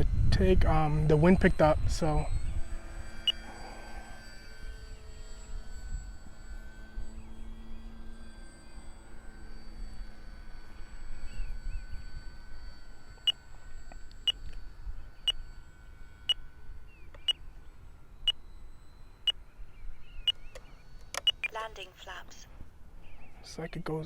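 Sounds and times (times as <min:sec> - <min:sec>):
transmitter alarm beeping: 0:00.0 - 0:04.1, 0:21.2 - 0:22.2.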